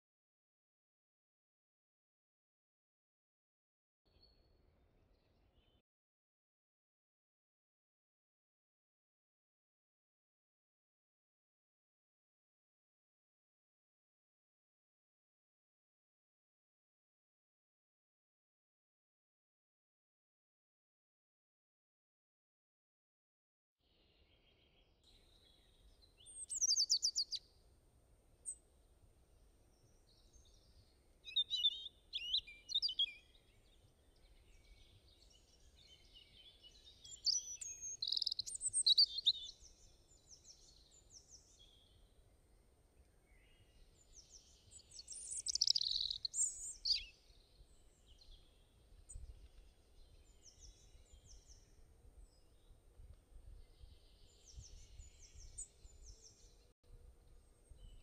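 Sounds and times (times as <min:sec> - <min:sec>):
birds chirping and singing: 0:25.4 - 0:27.4, 0:30.1 - 0:42.0, 0:43.4 - 0:52.6, 0:53.6 - 0:56.7.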